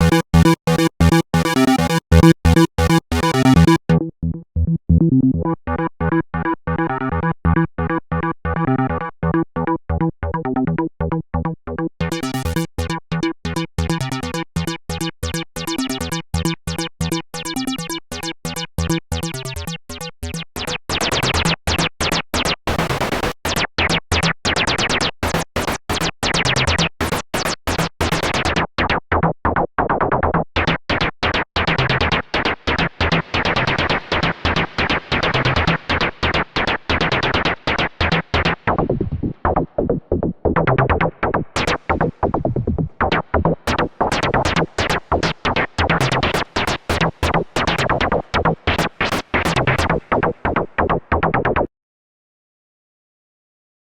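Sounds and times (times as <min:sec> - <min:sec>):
synthesizer pulsing sequence: 0:00.0 - 0:05.9.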